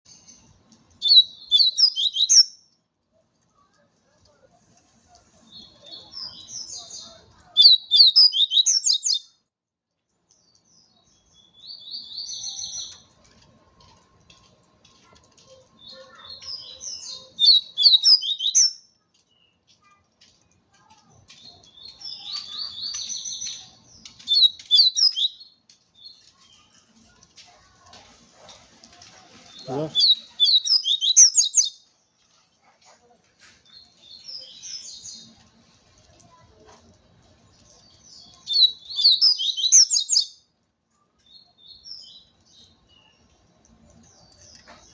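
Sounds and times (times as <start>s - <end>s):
bird twittering song: 0.1s - 2.6s, 5.5s - 9.3s, 10.3s - 13.1s, 15.6s - 19.6s, 21.3s - 26.8s, 29.4s - 31.9s, 37.5s - 40.4s.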